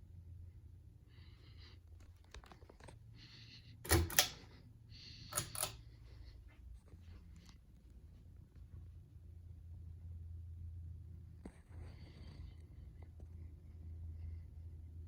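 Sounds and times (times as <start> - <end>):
pull chain switch clicks: 3.8 - 4.5, 5.3 - 5.8.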